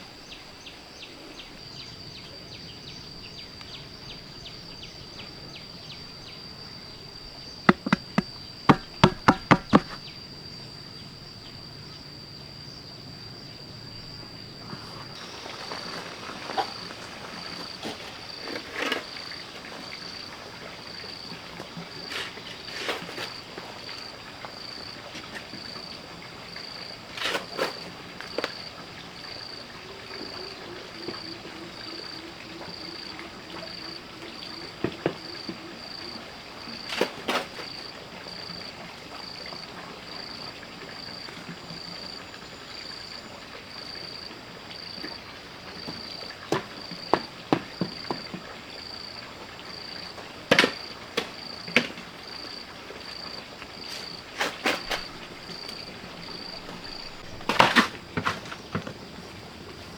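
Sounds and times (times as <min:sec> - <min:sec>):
insect chirping: 0:00.0 - 0:59.9
sharp knocks: 0:07.7 - 0:10.0.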